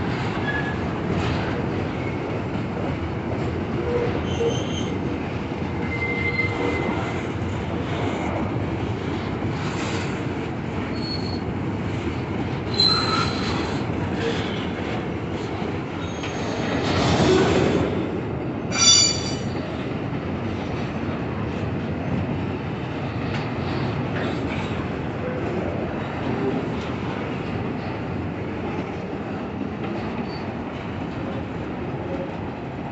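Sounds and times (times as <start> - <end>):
train cars rumbling: 0.0 - 32.9
train wheels squealing on rails: 0.1 - 2.2, 3.8 - 5.0, 5.8 - 7.3, 10.8 - 11.5, 12.6 - 14.7, 15.9 - 17.9, 18.7 - 19.8, 30.0 - 30.6.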